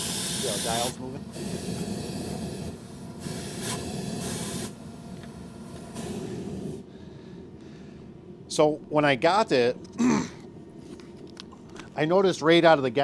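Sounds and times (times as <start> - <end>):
propane gas hissing: 0.0 - 8.2.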